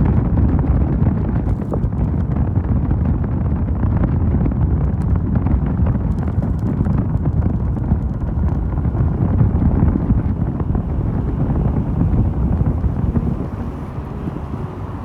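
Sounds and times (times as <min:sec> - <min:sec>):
wind rumbling on microphone: 0:00.0 - 0:15.0
motorcycle engine running: 0:05.2 - 0:15.0.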